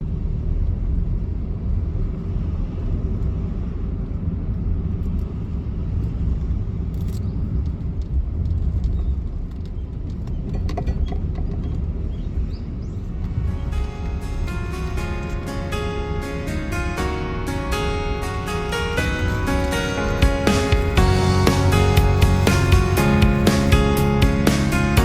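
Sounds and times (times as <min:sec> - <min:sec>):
car tyres and engine rumble: 0:00.0 - 0:16.6.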